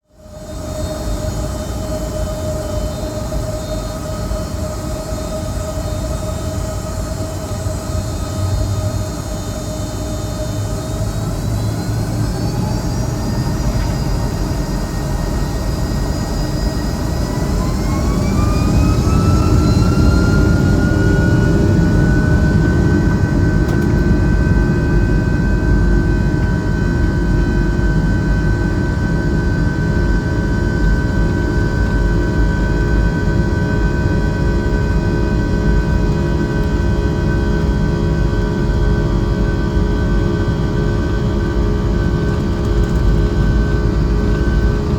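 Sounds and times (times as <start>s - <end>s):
jet engine whine: 0.0s - 44.9s.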